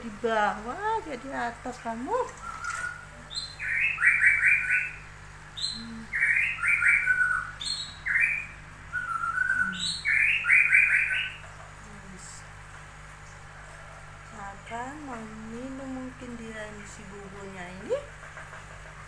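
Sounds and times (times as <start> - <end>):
bird singing: 2.1 - 11.7.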